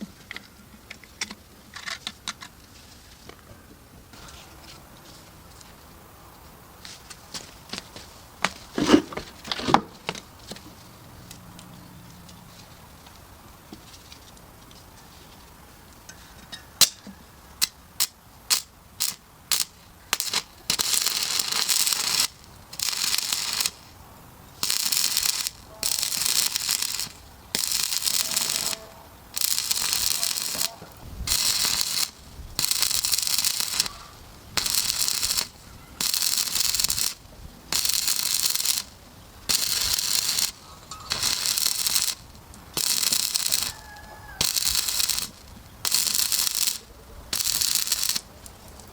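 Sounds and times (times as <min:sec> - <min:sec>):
welding arc crackling and hissing: 0:17.6 - 0:48.9.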